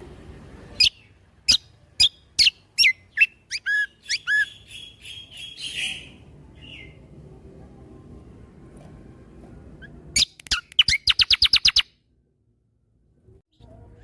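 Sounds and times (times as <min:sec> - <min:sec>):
songbird whistling: 0:00.8 - 0:07.0, 0:09.8 - 0:12.0.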